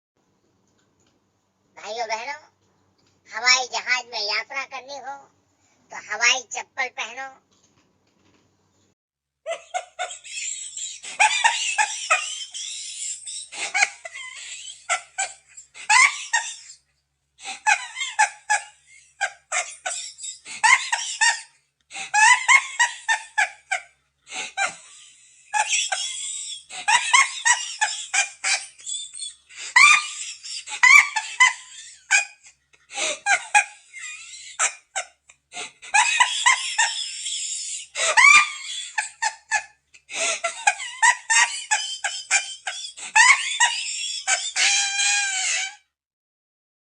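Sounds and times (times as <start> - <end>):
high-pitched laughter: 9.5 - 45.9.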